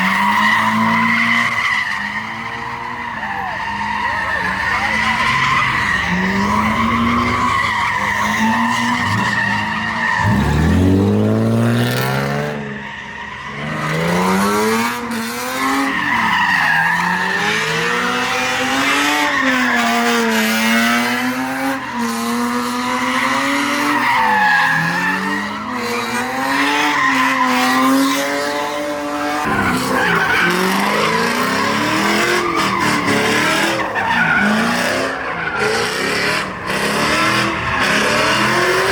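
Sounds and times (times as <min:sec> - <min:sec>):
tyres squealing: 0:00.0 - 0:10.9, 0:29.4 - 0:38.9
car engine revving: 0:02.0 - 0:38.9.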